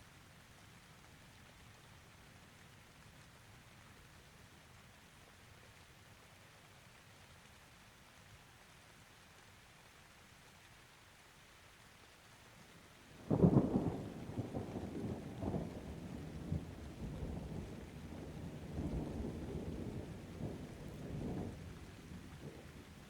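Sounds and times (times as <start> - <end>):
light rain hissing: 0.0 - 23.0
thunder rumbling and cracking: 13.3 - 23.0.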